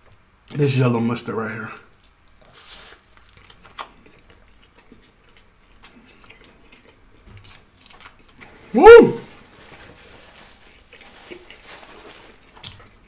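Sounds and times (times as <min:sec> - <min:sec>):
close-up chewing: 0:01.9 - 0:08.6, 0:09.8 - 0:13.0.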